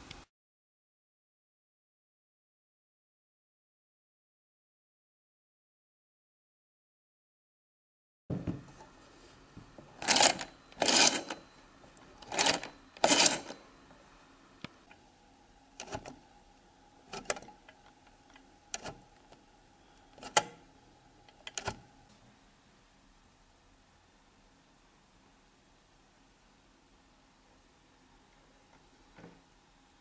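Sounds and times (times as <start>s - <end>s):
rotary telephone mechanism clicking: 10.0s - 11.4s, 12.2s - 13.6s, 15.8s - 16.2s, 17.1s - 19.4s, 20.2s - 20.6s, 21.3s - 21.8s.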